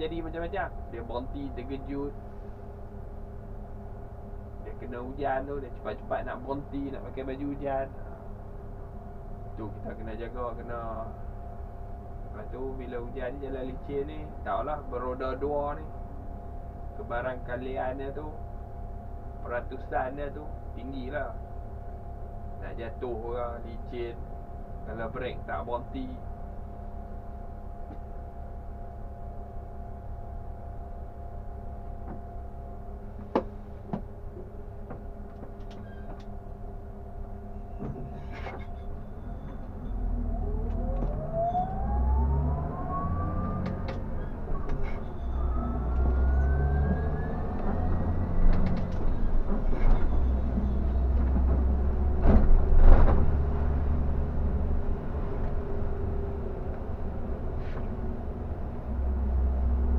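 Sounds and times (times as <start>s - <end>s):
bus engine humming: 0.0s - 59.9s
engine whine rising: 38.8s - 59.9s.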